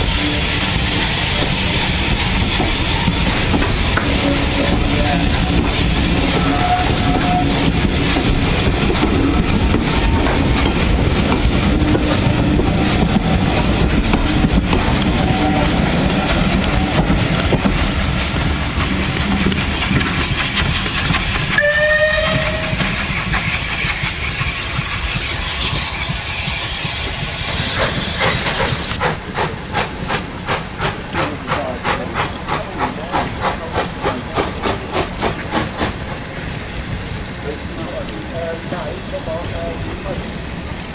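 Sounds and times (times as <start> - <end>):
steam train rushing and hissing: 0.0 - 40.9
wheels clicking over rail joints: 1.3 - 40.9
train whistle: 4.0 - 5.6, 6.2 - 7.8, 21.5 - 23.1.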